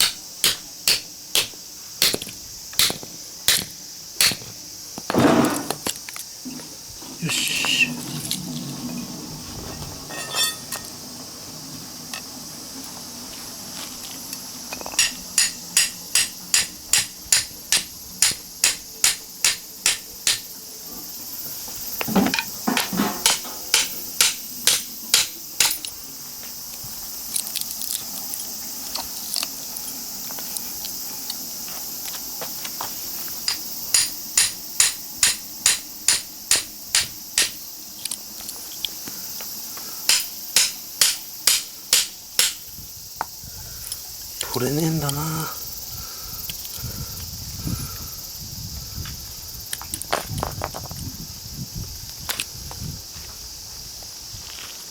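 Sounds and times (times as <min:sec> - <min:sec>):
hammer striking chisel on metal: 0:00.0 - 0:04.4, 0:10.1 - 0:10.9, 0:15.0 - 0:20.4, 0:22.4 - 0:25.9, 0:33.5 - 0:37.6, 0:40.1 - 0:42.6.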